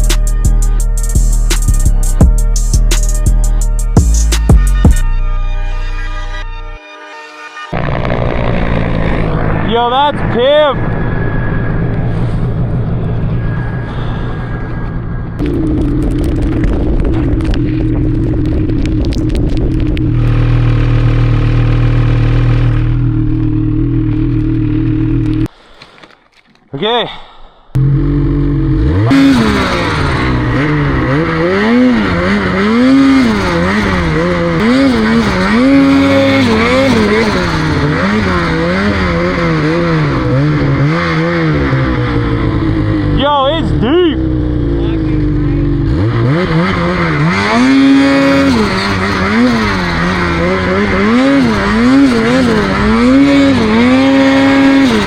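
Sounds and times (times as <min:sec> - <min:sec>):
snowmobile engine revving: 0:07.7 - 0:13.4, 0:15.4 - 0:25.5, 0:27.8 - 0:55.0.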